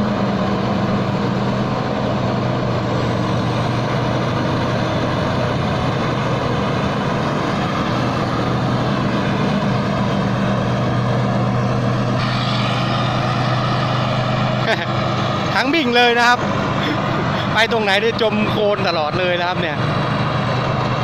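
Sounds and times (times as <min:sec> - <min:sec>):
combine harvester engine droning: 0:00.0 - 0:21.0.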